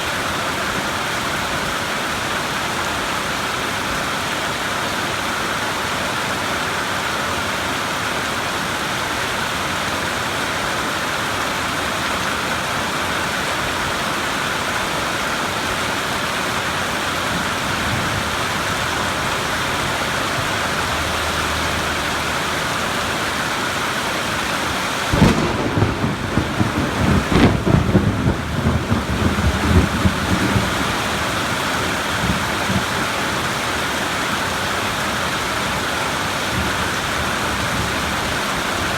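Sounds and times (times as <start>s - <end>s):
rain hissing: 13.4s - 38.9s
thunder rumbling: 25.1s - 33.4s.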